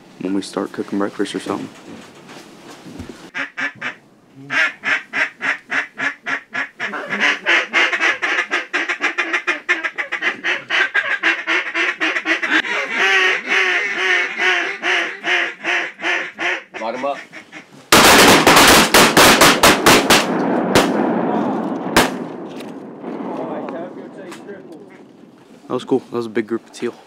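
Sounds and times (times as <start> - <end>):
duck calls quacking: 3.3 - 17.9.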